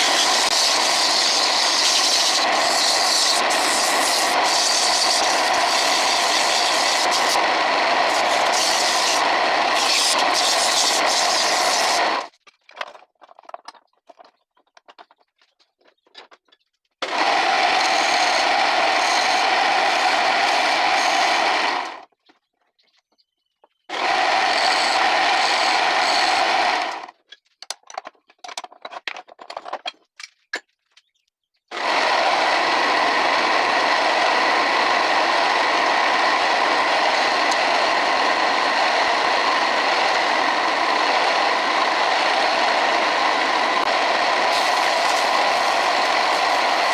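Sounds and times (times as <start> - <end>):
wood lathe whirring and scraping: 0.0 - 12.3, 17.0 - 22.1, 23.9 - 27.2, 31.7 - 46.9.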